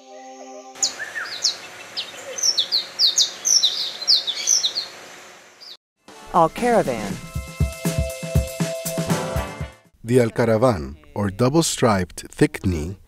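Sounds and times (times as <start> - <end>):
birds chirping: 0.0 - 5.8.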